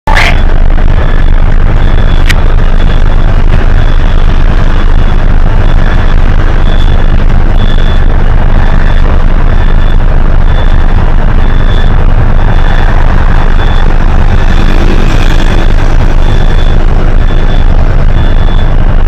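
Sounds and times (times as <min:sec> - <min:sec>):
bus diesel engine running: 0:00.0 - 0:19.0
short high beeps: 0:00.1 - 0:00.6.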